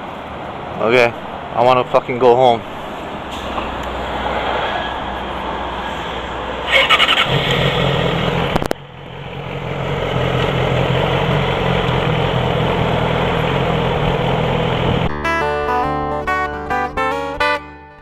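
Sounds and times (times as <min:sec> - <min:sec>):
motorcycle engine running: 0:07.3 - 0:15.1
click: 0:08.6 - 0:08.8
acoustic guitar music: 0:13.2 - 0:18.0.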